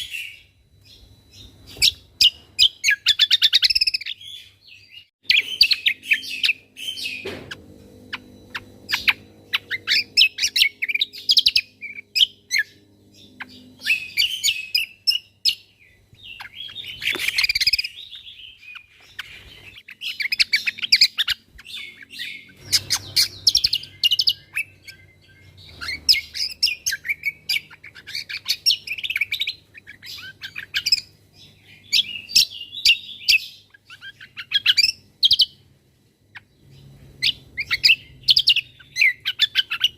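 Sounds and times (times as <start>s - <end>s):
bird rapid chirps and trills: 0.0s - 7.3s, 8.0s - 35.7s, 36.3s - 39.9s
faint low hum: 0.0s - 39.9s.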